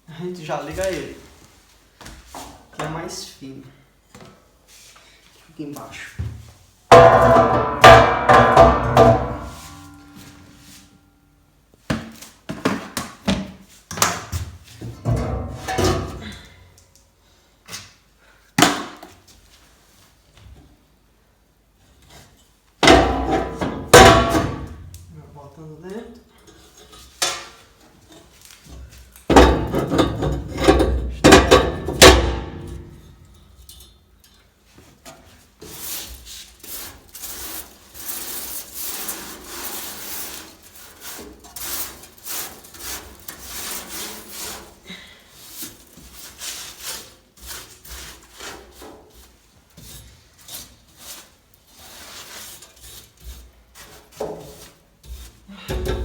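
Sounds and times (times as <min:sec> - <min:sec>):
knocking and clattering: 0:06.9 - 0:10.2, 0:29.3 - 0:33.0
scraping and brushing ash: 0:35.4 - 0:55.5.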